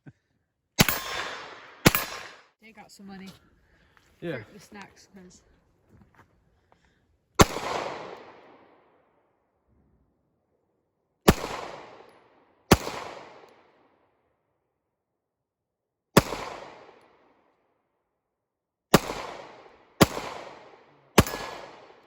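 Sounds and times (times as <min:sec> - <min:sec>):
gunshots with echo: 0:00.8 - 0:02.5, 0:07.4 - 0:08.9, 0:11.3 - 0:13.7, 0:16.2 - 0:17.0, 0:18.9 - 0:22.0.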